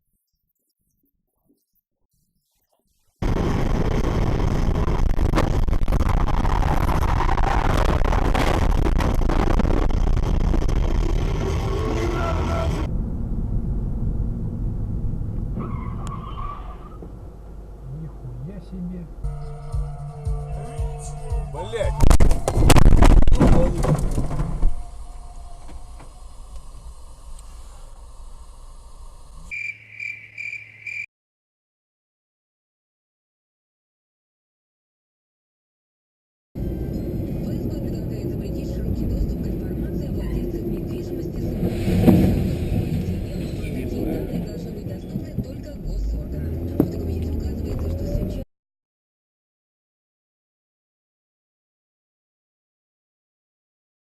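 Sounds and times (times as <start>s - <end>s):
car road and engine rumble: 3.2s - 29.6s, 36.6s - 48.5s
car collision crunching: 22.0s - 25.0s, 41.6s - 43.8s.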